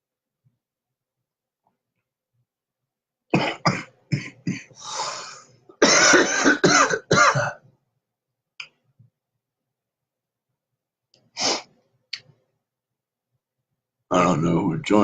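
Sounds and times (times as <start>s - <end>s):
man coughing: 3.3s - 4.8s, 5.8s - 7.6s
breathy exhale: 4.8s - 5.5s.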